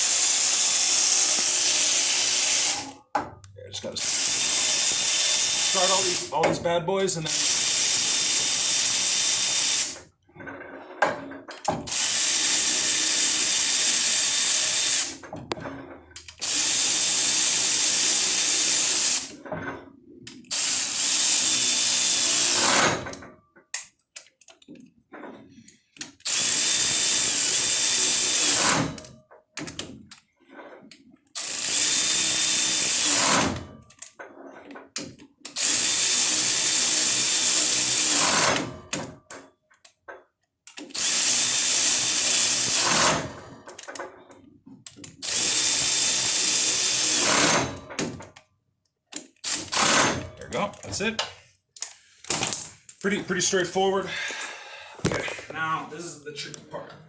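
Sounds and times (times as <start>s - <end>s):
power drill running bolts: 0.0s - 3.0s, 3.8s - 10.1s, 11.6s - 15.3s, 16.2s - 19.4s, 20.3s - 23.3s, 26.2s - 29.9s, 31.4s - 34.1s, 35.5s - 39.1s, 40.8s - 44.0s, 44.9s - 48.2s, 49.4s - 51.2s.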